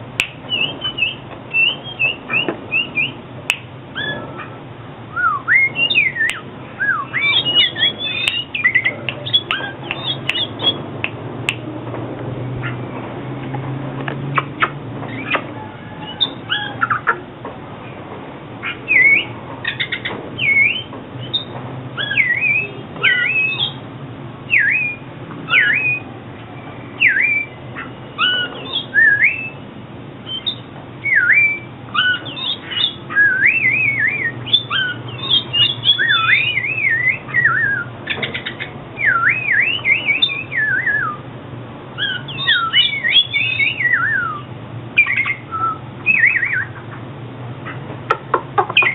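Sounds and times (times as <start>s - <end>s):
bird singing whistled phrases: 0.5s - 3.2s, 4.0s - 4.3s, 5.1s - 10.8s, 18.6s - 23.8s, 24.5s - 26.1s, 26.9s - 29.6s, 30.3s - 41.2s, 42.0s - 46.8s
harsh bird clicking notes: 7.2s - 11.7s.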